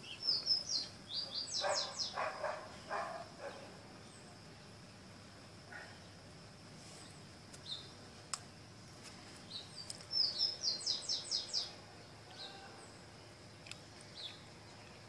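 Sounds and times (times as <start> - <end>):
small bird chirping: 0.0 - 4.3, 7.0 - 8.6, 9.3 - 15.0.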